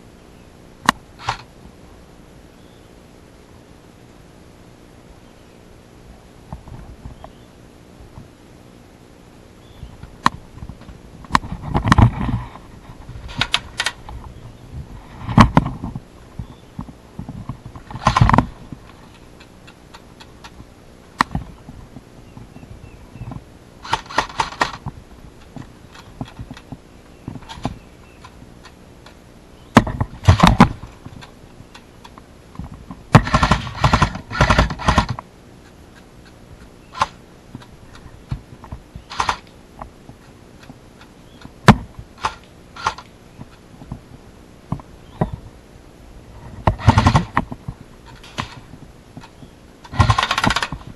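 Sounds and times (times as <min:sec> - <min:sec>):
sharp knocks and thumps: 0:10.2 - 0:14.4, 0:15.2 - 0:19.0, 0:29.7 - 0:31.3, 0:32.6 - 0:35.2, 0:41.4 - 0:44.0, 0:46.5 - 0:50.9
airsoft guns rapid firing: 0:23.8 - 0:24.8, 0:33.2 - 0:35.2, 0:39.1 - 0:39.4, 0:46.8 - 0:47.4, 0:49.9 - 0:50.8.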